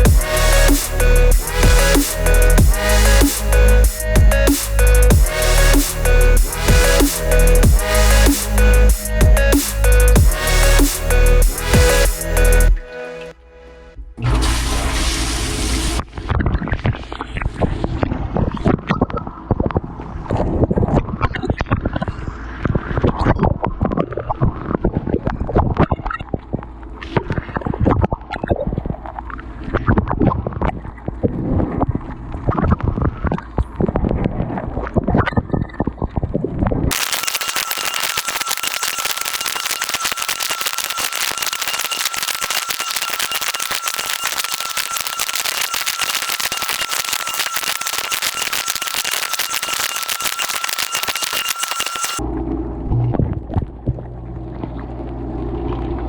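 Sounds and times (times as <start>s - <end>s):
thin high whine: 0.0s - 16.2s, 36.9s - 52.2s
muffled rumbling water: 52.2s - 56.0s.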